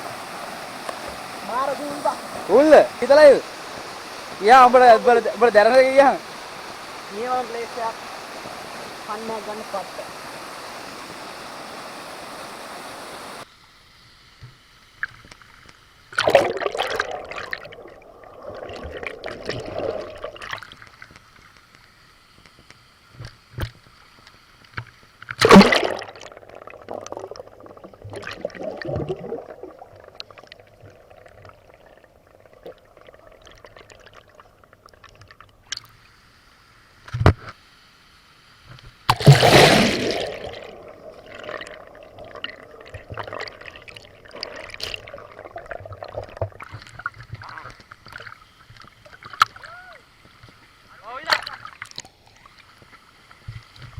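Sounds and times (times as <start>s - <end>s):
waterfall rushing: 0.0s - 13.4s
water splashing and sloshing: 15.0s - 22.6s, 23.3s - 36.0s, 38.7s - 53.9s.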